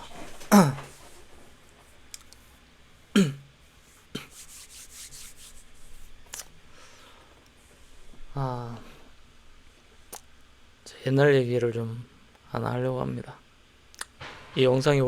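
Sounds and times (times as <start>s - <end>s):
man clearing throat: 0.5s - 0.9s, 3.1s - 3.5s
small clicks: 2.1s - 2.4s
breathing noise: 6.7s - 7.4s.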